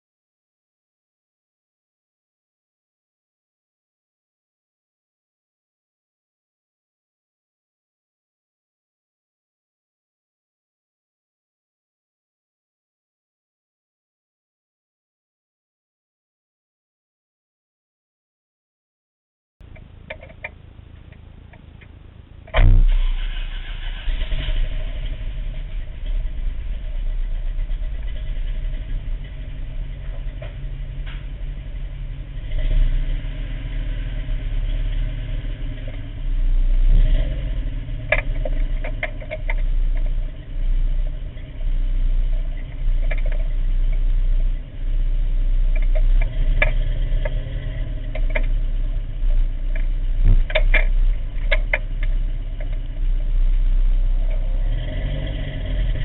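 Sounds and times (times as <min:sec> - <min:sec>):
engine idling roughly and misfiring: 0:19.6 - 0:54.6.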